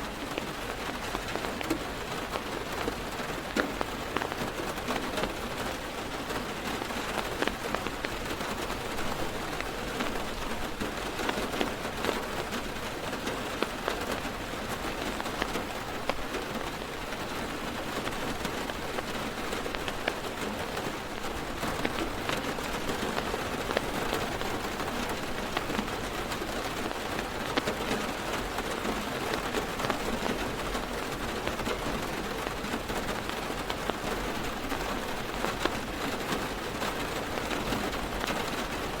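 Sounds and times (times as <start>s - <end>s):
heavy rain drumming on car roof: 0.0s - 39.0s.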